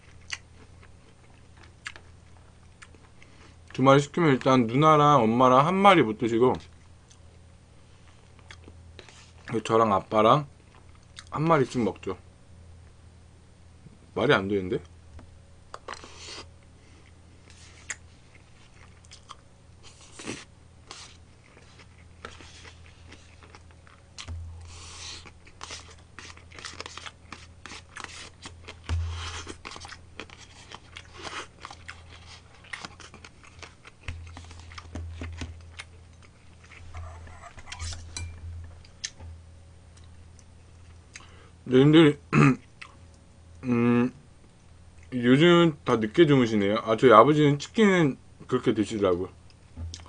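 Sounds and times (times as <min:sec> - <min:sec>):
chewing with wet mouth sounds: 0:00.0 - 0:03.8, 0:08.0 - 0:09.2, 0:16.9 - 0:37.3, 0:39.9 - 0:41.3, 0:42.6 - 0:43.2.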